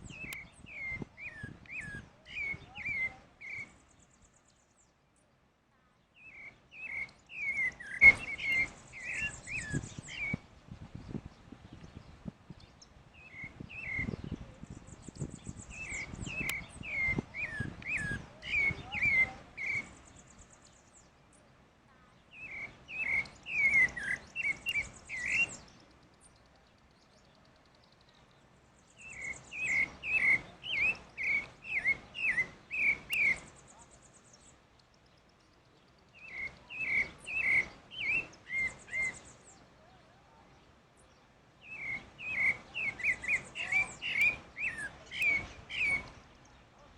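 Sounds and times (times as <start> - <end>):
thrush singing warbled whistles: 0.0 - 4.6, 6.2 - 11.3, 13.1 - 21.0, 22.3 - 26.4, 28.8 - 34.6, 36.0 - 39.8, 41.1 - 46.6
thin high bird twitter: 0.0 - 46.9.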